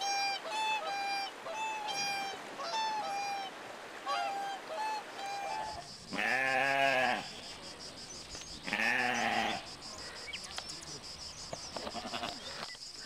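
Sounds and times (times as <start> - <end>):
swan honking: 0.0 - 7.3
background hiss: 0.0 - 13.0
sheep bleat: 6.1 - 7.3, 8.6 - 9.6, 11.8 - 12.4.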